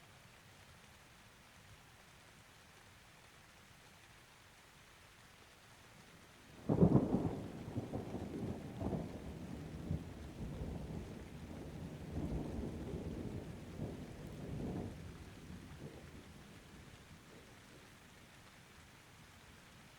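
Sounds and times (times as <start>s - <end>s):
faint steady rain: 0.0s - 19.9s
thunderclap rumbling: 6.7s - 16.2s.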